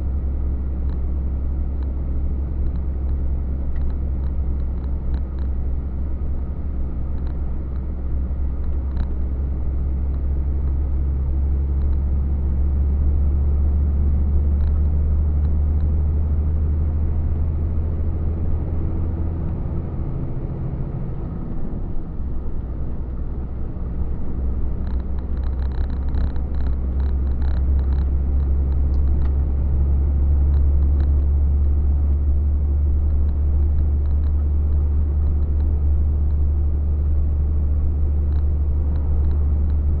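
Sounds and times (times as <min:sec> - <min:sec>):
truck engine and road drone: 0:00.0 - 0:40.0
small rattling ticks: 0:24.8 - 0:29.3.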